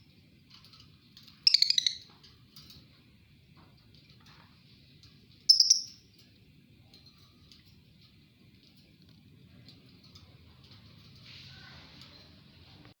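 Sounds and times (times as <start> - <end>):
faint bird chirps and clicks: 1.2 - 2.1, 5.5 - 6.3.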